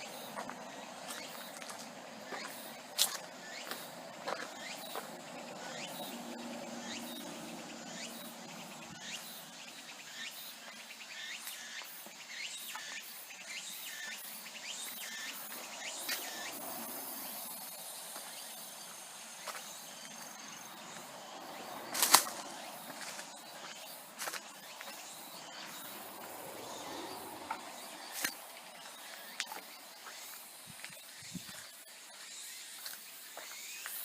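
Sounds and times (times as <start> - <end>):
faint insects chirring: 0.0 - 34.0
footsteps crackling through branches: 21.9 - 23.4
branch snapping: 22.0 - 22.4.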